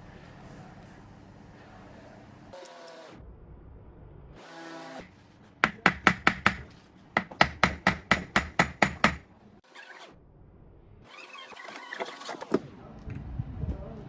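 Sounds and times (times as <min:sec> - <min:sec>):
rapid knocking strikes: 0:05.6 - 0:09.2.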